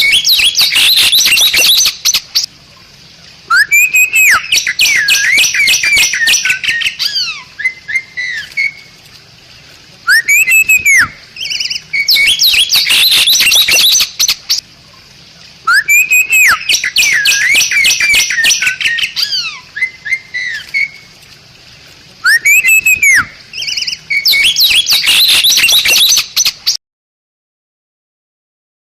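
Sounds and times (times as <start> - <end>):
myna whistling and chattering: 3.5 - 8.8, 10.1 - 14.4, 15.7 - 20.9, 22.2 - 26.5.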